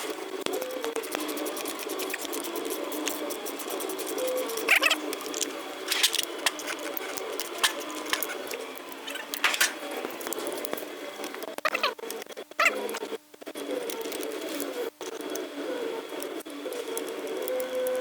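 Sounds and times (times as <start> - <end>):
tools clicking and tapping: 4.2 - 10.8.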